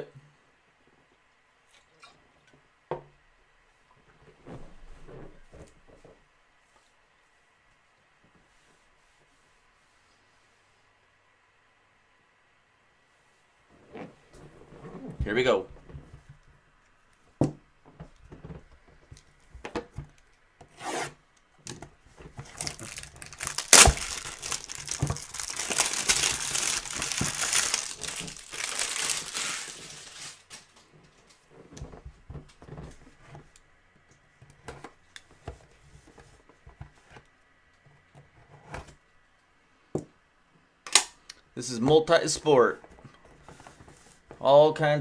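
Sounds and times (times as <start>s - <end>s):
rubbing and handling of box: 22.0s - 30.6s
plastic wrap tearing and crinkling: 22.4s - 30.9s.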